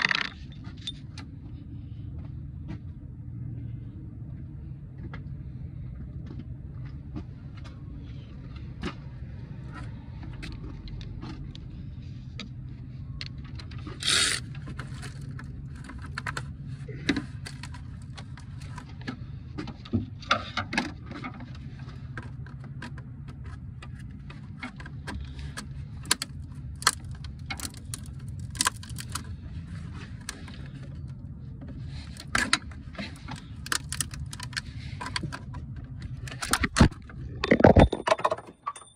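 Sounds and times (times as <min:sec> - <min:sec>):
steady low hum: 0:00.0 - 0:38.2
metal clinking and rattling: 0:37.4 - 0:38.9.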